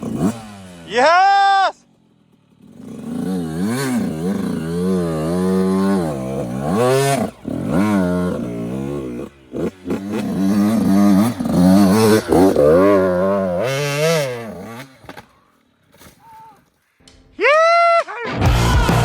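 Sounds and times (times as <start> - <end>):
dirt bike engine revving: 0.0 - 15.2.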